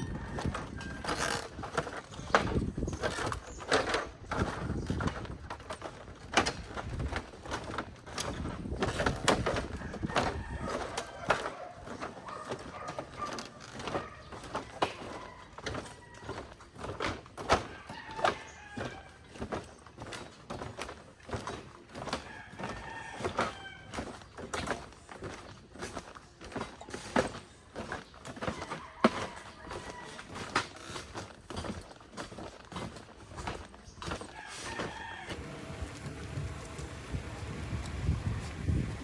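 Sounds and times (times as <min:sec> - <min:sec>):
rooster crowing: 0:00.0 - 0:01.4, 0:09.8 - 0:11.8, 0:22.3 - 0:23.9, 0:28.6 - 0:30.4, 0:34.4 - 0:36.8.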